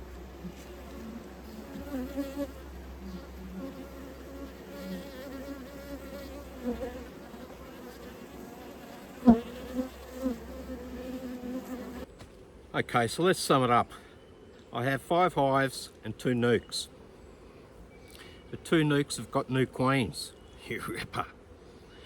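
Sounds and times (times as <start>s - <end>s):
bees buzzing: 0.0s - 12.1s.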